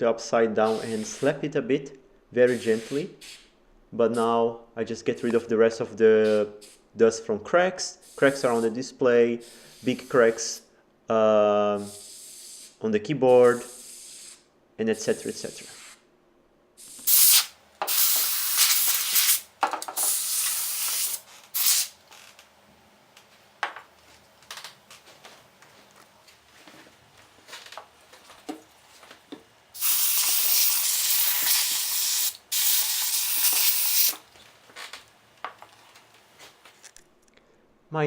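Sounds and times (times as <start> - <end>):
compressed air hissing blasts: 0.6 - 1.4, 2.5 - 3.5, 8.0 - 10.6, 11.7 - 16.0, 16.8 - 22.0, 29.8 - 34.3.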